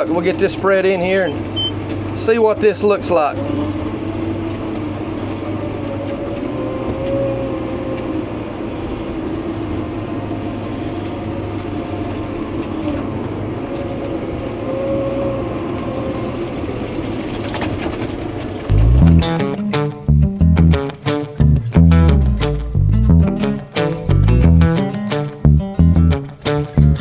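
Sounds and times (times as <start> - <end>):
heavy machine diesel engine: 18.7 - 27.0.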